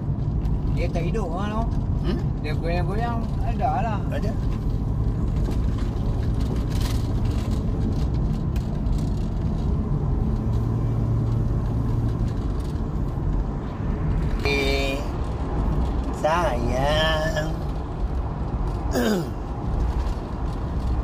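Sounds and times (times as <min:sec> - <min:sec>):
vehicle engine and road rumble: 0:00.0 - 0:21.0.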